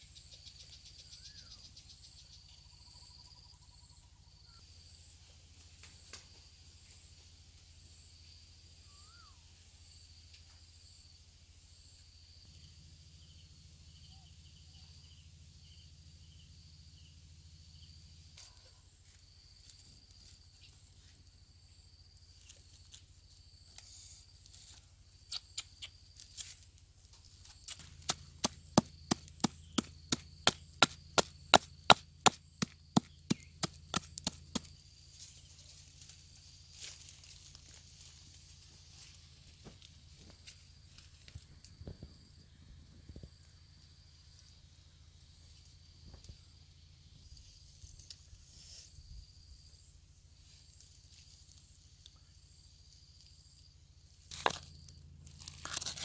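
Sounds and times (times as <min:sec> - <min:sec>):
blade chopping on wood: 0:27.7 - 0:34.7.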